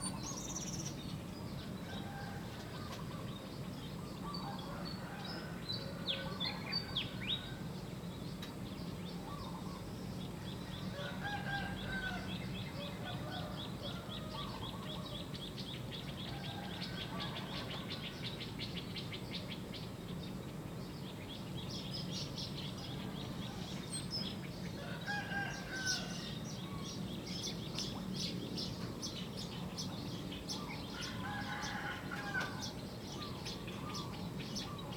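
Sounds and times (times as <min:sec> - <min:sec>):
low background noise: 0:00.0 - 0:34.9
rooster crowing: 0:24.8 - 0:26.3, 0:31.0 - 0:32.7.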